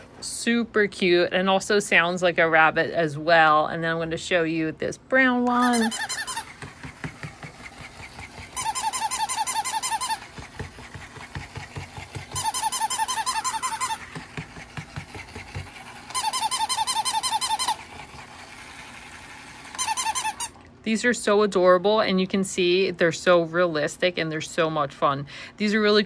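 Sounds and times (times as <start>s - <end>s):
toy squeaky electronic chirps: 5.6s - 6.6s, 8.6s - 10.2s, 12.3s - 14.0s, 16.1s - 17.8s, 19.7s - 20.6s.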